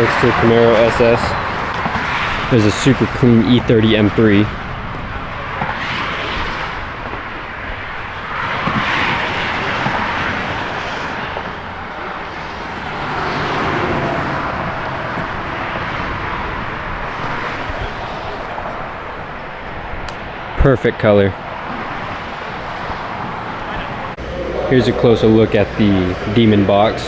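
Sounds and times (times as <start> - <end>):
highway traffic rushing hiss: 0.0 - 27.0.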